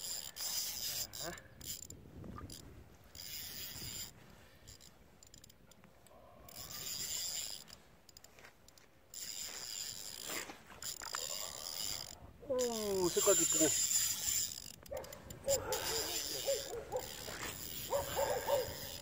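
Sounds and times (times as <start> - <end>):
fishing reel ratchet whirring: 0.0 - 19.0.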